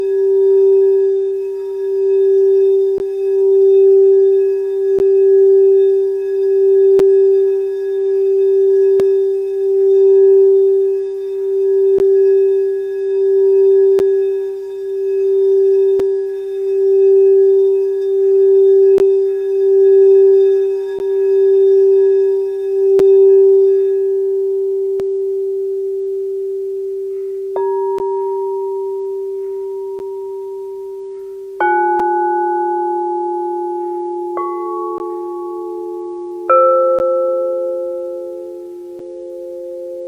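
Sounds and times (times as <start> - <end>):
singing bowl low pulsing tone: 0.0 - 40.0
singing bowl struck ringing: 0.0 - 40.0.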